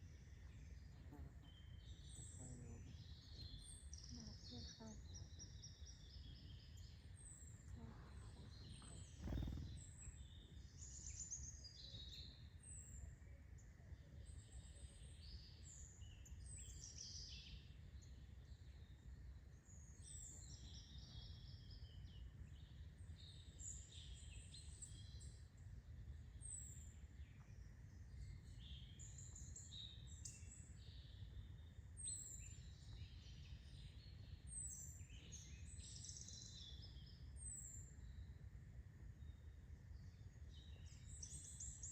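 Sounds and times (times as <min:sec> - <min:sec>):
small birds chirping: 0:00.0 - 0:13.1, 0:26.3 - 0:38.4.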